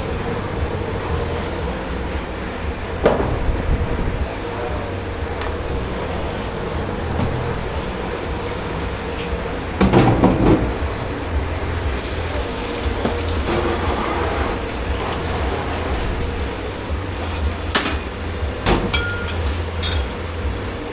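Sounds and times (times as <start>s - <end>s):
low machine hum: 0.0s - 20.9s
dishes clattering: 9.8s - 10.9s, 17.2s - 20.3s
running water hiss: 10.6s - 20.9s.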